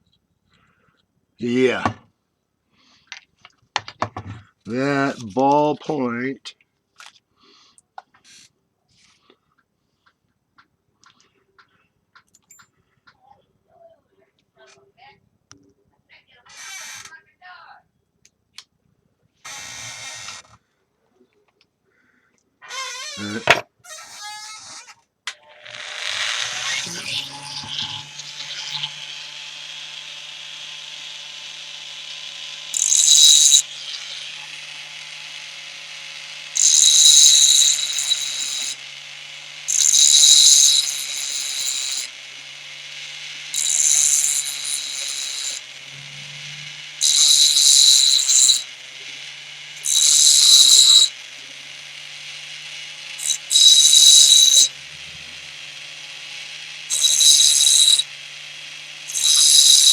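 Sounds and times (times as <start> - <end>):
motor humming: 25.5 - 59.9
high grinding hiss: 25.6 - 59.9.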